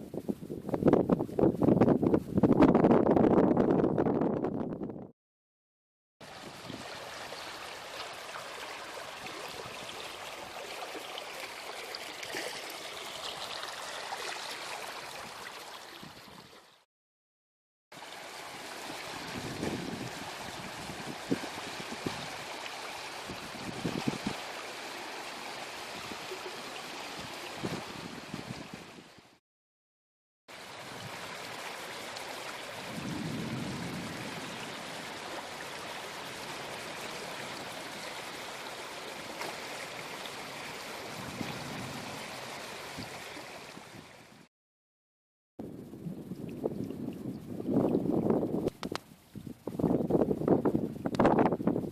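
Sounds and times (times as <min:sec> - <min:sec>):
water rushing in a stream: 0:06.2 - 0:16.8, 0:18.0 - 0:29.4, 0:30.5 - 0:44.5.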